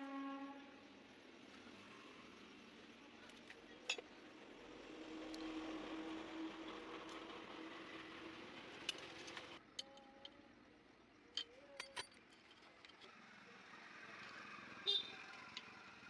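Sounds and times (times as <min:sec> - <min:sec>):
light metallic clicks and clinks: 0:11.3 - 0:13.2.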